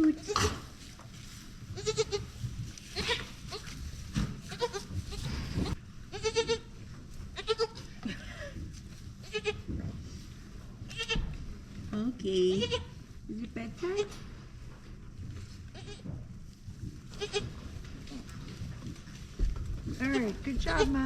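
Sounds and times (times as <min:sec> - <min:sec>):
goat kids bleating: 0:01.8 - 0:03.8, 0:04.5 - 0:07.9, 0:09.2 - 0:09.7, 0:10.9 - 0:11.3, 0:12.5 - 0:13.0, 0:15.7 - 0:16.1, 0:17.1 - 0:18.3.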